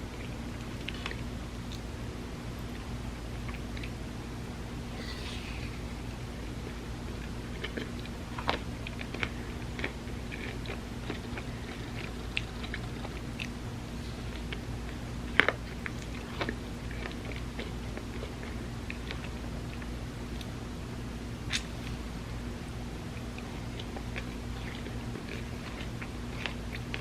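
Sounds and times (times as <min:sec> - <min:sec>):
bites and chewing: 0:07.1 - 0:20.6, 0:23.2 - 0:27.0.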